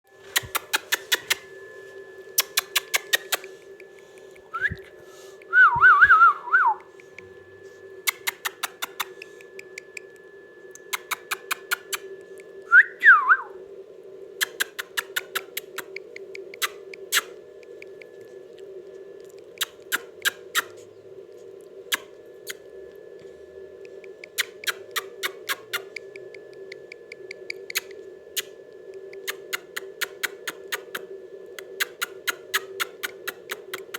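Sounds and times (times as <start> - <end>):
steady hum: 0.1 - 33.9
sharp clicks: 0.3 - 1.4, 2.4 - 6.2, 8.0 - 12.5, 14.4 - 18.2, 23.8 - 31.0.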